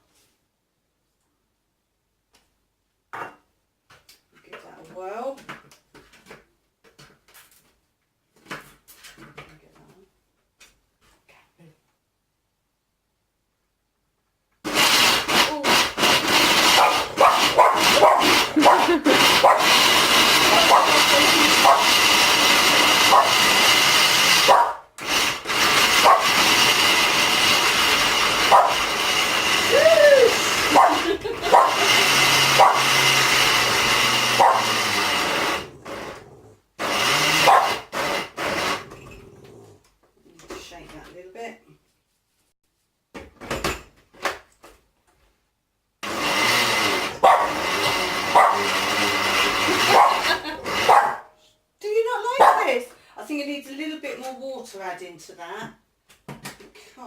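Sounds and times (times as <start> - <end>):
blender motor whining: 14.7 - 39.2, 46.0 - 51.1
dog barking: 16.8 - 19.8, 20.5 - 22.0, 23.1 - 23.5, 24.5 - 24.9, 26.0 - 26.4, 28.5 - 28.8, 30.7 - 31.9, 32.6 - 32.9, 34.4 - 34.7, 37.4 - 37.8, 47.2 - 47.6, 48.3 - 48.7, 49.8 - 51.4, 52.4 - 52.7.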